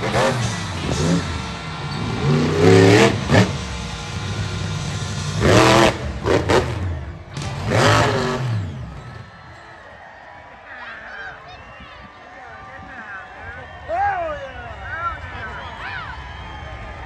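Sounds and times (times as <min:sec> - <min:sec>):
monster truck engine revving: 0:00.0 - 0:09.7.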